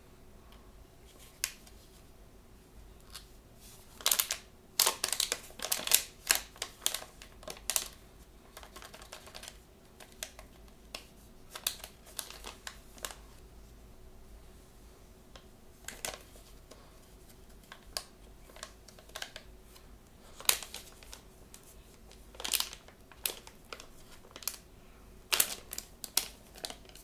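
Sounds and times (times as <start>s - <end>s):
packaging crinkling: 3.9s - 13.2s, 15.9s - 16.7s, 17.4s - 24.7s, 25.3s - 27.0s.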